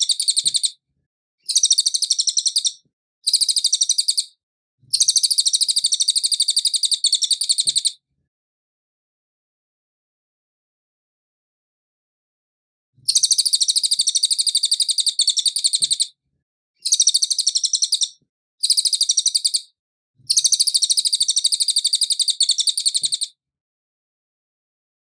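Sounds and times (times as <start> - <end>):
bird trilling high sharp chirps: 0.0 - 0.8, 1.4 - 8.0, 13.1 - 16.1, 16.8 - 19.7, 20.3 - 23.4.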